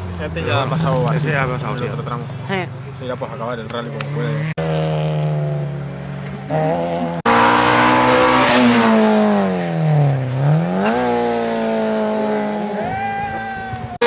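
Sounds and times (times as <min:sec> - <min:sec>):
rally car engine at high revs: 0:03.8 - 0:12.8.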